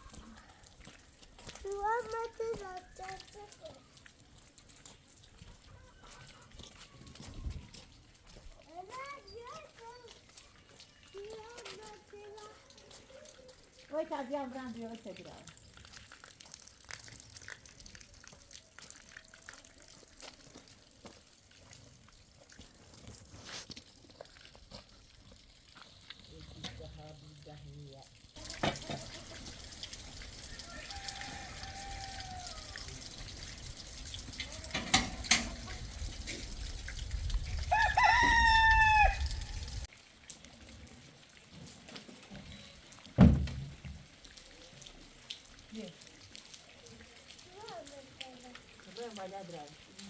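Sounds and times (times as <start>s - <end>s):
faint water drips: 0.0s - 50.0s
rooster crowing: 30.4s - 32.9s, 37.7s - 39.8s
loud thump: 43.2s - 43.9s.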